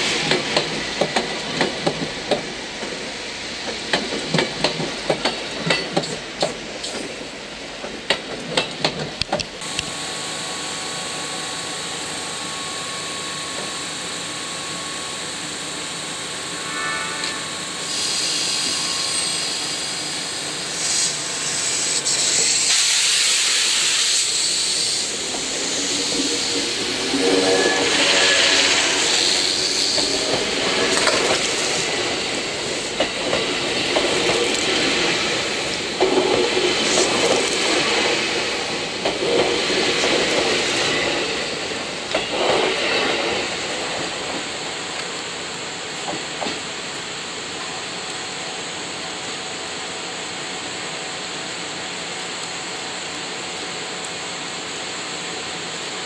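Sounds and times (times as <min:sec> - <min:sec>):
train equipment humming: 0:00.0 - 0:50.3
train wheels clicking over rail joints: 0:00.1 - 0:03.0, 0:03.6 - 0:07.2, 0:07.8 - 0:09.8, 0:28.6 - 0:41.4
air hissing: 0:16.5 - 0:33.0.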